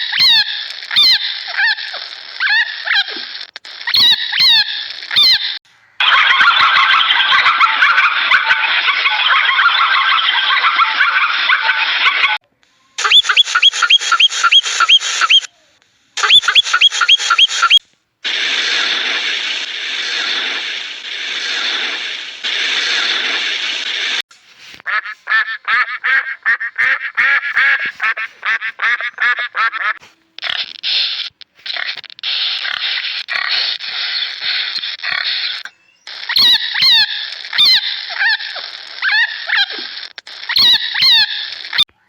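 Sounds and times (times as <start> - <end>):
dense flock noise: 5.7 - 12.4
rapid chattering calls: 13.0 - 15.5, 16.2 - 24.2, 25.3 - 41.8
quick repeated animal calls: 16.2 - 17.8, 27.6 - 41.8.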